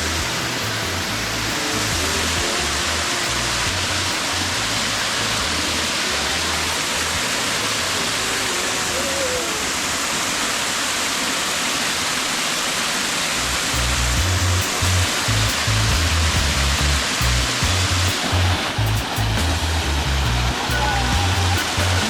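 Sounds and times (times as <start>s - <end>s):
music with bassline: 0.0s - 8.3s, 13.4s - 22.0s
rushing water: 0.0s - 22.0s.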